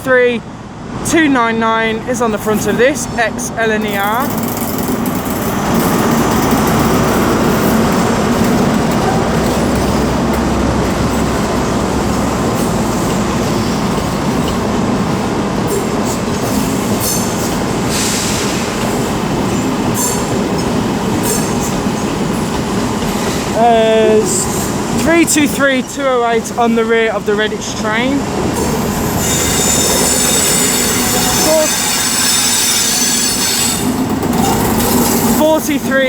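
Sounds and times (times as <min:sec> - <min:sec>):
diesel train engine and wheel noise: 0:00.0 - 0:36.0
high wheel squeals: 0:15.7 - 0:22.5, 0:28.5 - 0:35.4.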